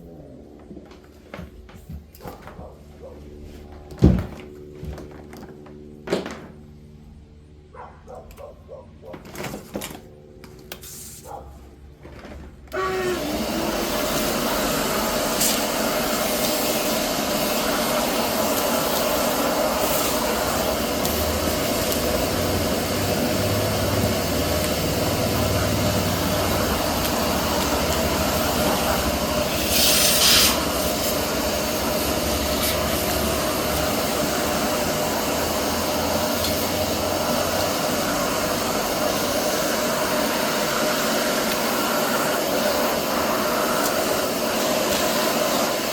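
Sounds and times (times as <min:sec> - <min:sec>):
electric machine humming: 0:12.7 - 0:45.9
loud hiss: 0:12.8 - 0:45.9.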